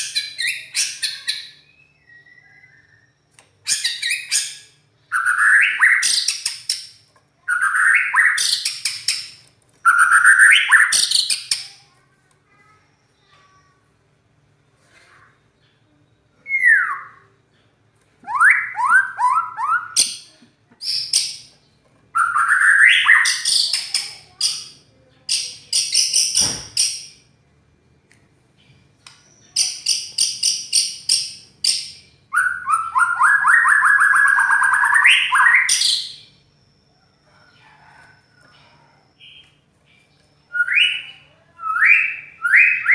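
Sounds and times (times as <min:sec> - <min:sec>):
bird singing whistles and trills: 0:00.1 - 0:06.5, 0:16.4 - 0:17.2, 0:31.7 - 0:37.0, 0:40.4 - 0:42.9.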